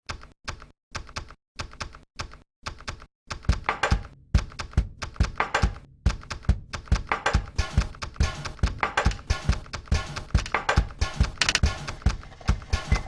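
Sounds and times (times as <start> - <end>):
coins clicking and clattering: 11.4 - 11.6.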